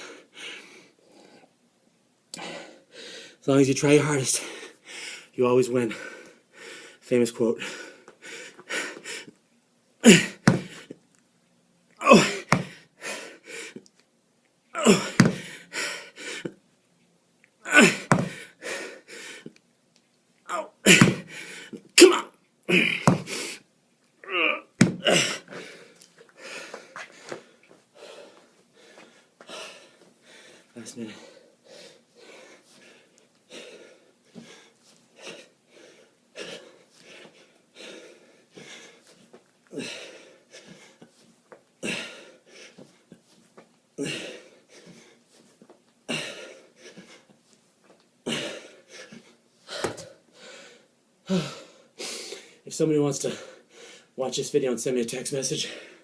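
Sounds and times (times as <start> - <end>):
man breathing heavily: 0.0 - 1.6, 2.3 - 9.4, 10.0 - 11.0, 12.0 - 13.9, 14.8 - 16.6, 17.6 - 19.6, 20.5 - 22.0, 22.7 - 43.4, 44.0 - 47.5, 48.2 - 54.2, 55.5 - 56.0
man grunting: 10.0 - 10.7, 12.0 - 12.7, 14.8 - 15.5, 17.6 - 18.4, 20.5 - 21.3, 22.0 - 23.2, 24.2 - 25.5
man grunting exhale: 12.0 - 12.7, 22.1 - 23.3, 24.2 - 25.6.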